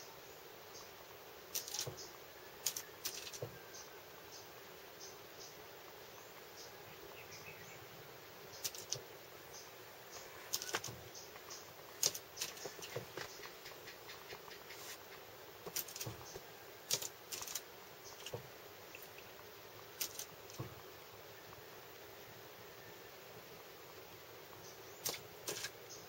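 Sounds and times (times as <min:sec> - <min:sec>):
bird wings flapping: 0:01.5 - 0:02.0, 0:02.6 - 0:03.5, 0:08.6 - 0:09.0, 0:10.4 - 0:11.0, 0:12.0 - 0:18.4, 0:20.0 - 0:20.7, 0:25.0 - 0:25.8
bird pecking at window glass: 0:20.0 - 0:20.8.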